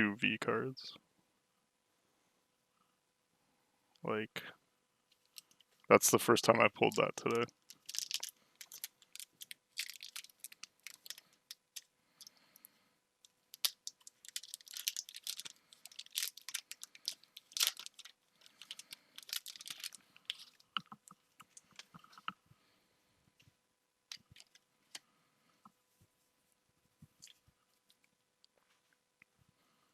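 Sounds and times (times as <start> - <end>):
cards and foil wrapper crinkling: 6.5 - 12.3, 13.5 - 22.2, 24.1 - 24.6.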